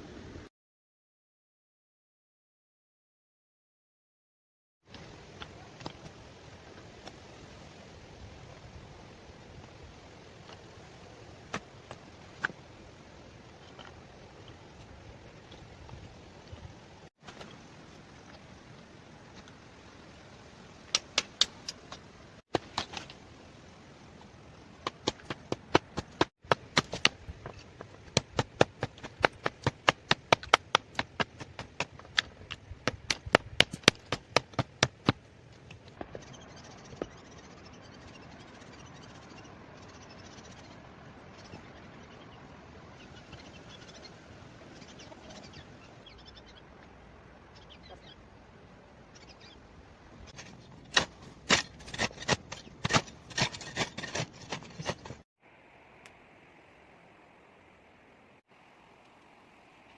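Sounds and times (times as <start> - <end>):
faint outdoor hiss: 4.9 - 53.0, 55.0 - 59.9
knocks and scrapes of wood: 20.9 - 23.2, 24.8 - 36.3, 50.3 - 55.2.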